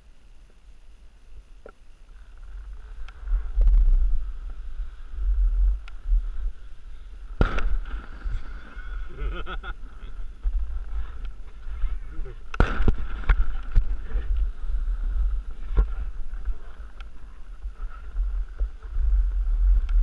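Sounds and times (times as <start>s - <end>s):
wind buffeting microphone: 2.4s - 20.0s
sharp crack: 7.3s - 8.9s, 12.4s - 14.5s.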